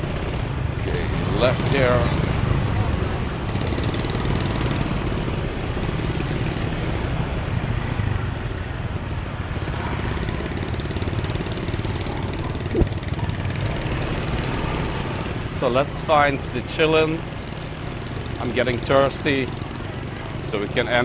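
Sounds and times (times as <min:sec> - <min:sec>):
motorbike engine running: 0:00.0 - 0:15.6
brief sharp sound: 0:12.7 - 0:13.0.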